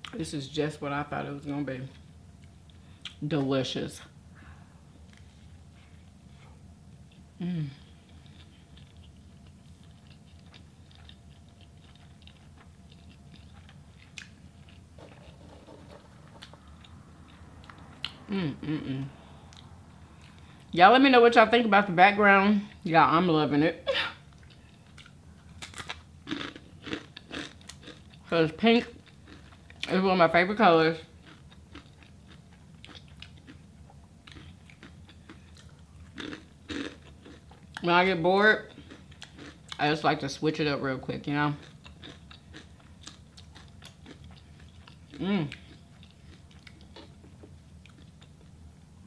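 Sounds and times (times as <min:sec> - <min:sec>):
low room hum: 0:00.0 - 0:49.0
chewing food: 0:08.0 - 0:18.3, 0:19.4 - 0:20.7, 0:24.3 - 0:30.0, 0:31.0 - 0:37.9, 0:38.6 - 0:39.9, 0:41.5 - 0:48.6
vocal sound gliding in pitch: 0:17.0 - 0:19.5.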